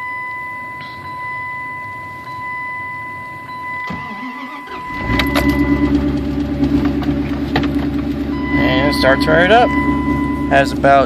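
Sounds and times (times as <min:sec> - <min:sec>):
electronic warning tone: 0:00.0 - 0:06.1, 0:08.3 - 0:11.0
starter motor cranking: 0:03.8 - 0:08.2
engine idling loudly: 0:04.7 - 0:11.0.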